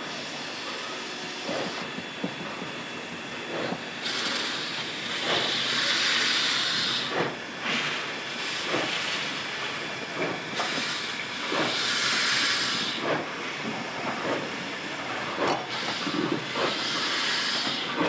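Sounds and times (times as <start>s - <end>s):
steam locomotive hissing: 0.0s - 18.0s
steam puffs: 3.8s - 9.5s, 10.1s - 13.6s, 15.2s - 18.0s.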